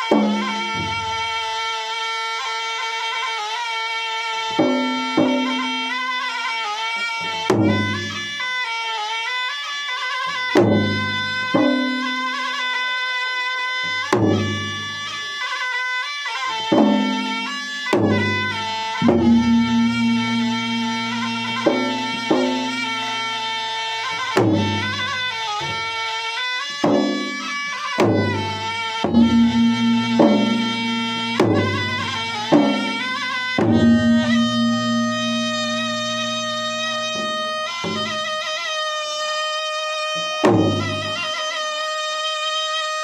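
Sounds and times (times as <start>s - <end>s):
drums beating heavily: 0.0s - 1.6s, 4.6s - 6.0s, 7.3s - 8.4s, 10.3s - 12.6s, 14.0s - 15.1s, 16.6s - 26.0s, 26.7s - 38.6s, 40.2s - 41.4s
reedy wind instrument melody: 0.0s - 43.0s.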